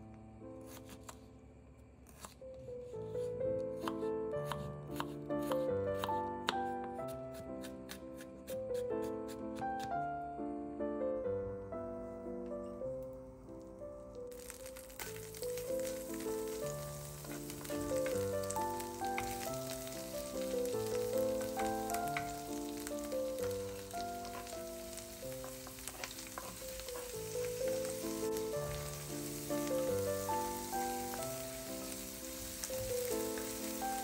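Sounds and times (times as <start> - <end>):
background music of held notes: 3.1 - 34.0
onion sizzling in a frying pan: 14.1 - 34.0
wooden spatula stirring: 14.4 - 34.0.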